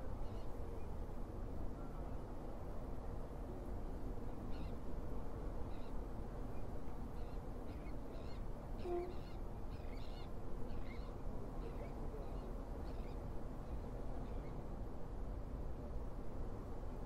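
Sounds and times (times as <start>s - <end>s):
birds giving short high calls: 8.8s - 9.4s.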